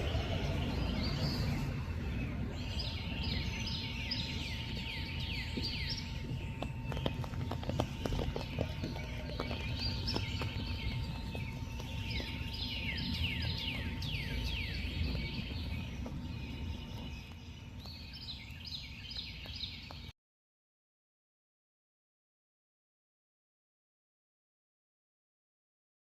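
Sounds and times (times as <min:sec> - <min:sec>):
low outdoor rumble: 0:00.0 - 0:20.1.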